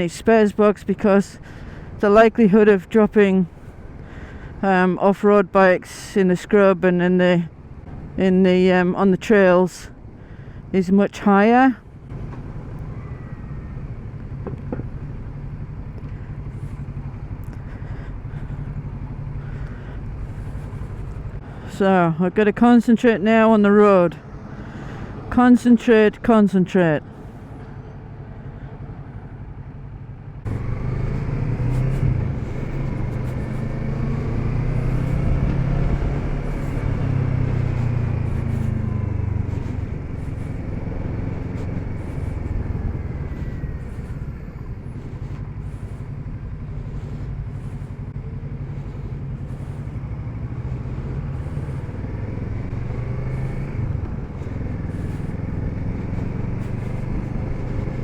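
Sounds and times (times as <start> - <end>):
motorcycle engine accelerating: 11.8 - 21.8, 27.0 - 58.0.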